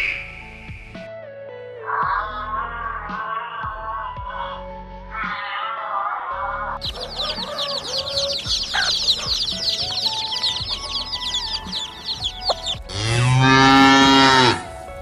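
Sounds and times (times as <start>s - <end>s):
chicks peeping: 6.8s - 14.5s
cow mooing: 12.9s - 14.7s.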